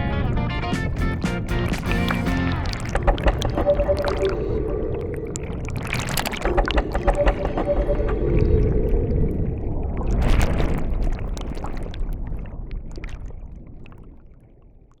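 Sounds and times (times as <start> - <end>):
underwater low rumble: 0.0 - 15.0
underwater clicks: 0.8 - 9.0
gurgling rush of water: 1.1 - 13.6.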